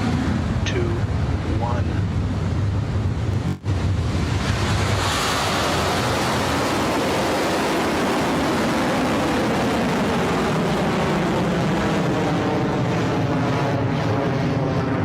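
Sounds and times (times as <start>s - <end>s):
rocket engines roaring: 0.0s - 15.0s.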